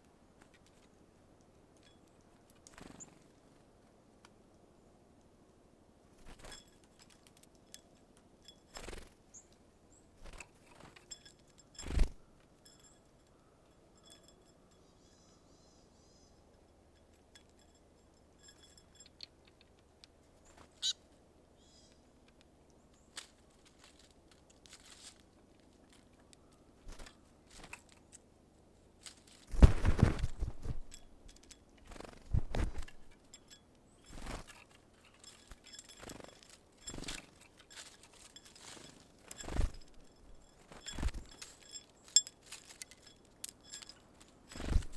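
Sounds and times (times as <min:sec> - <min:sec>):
birds wings fluttering: 0:02.6 - 0:03.4, 0:08.4 - 0:09.2, 0:10.2 - 0:12.8, 0:26.8 - 0:28.0, 0:29.0 - 0:44.9
faint high bird chirps: 0:09.3 - 0:10.1, 0:12.8 - 0:17.1, 0:20.4 - 0:23.2.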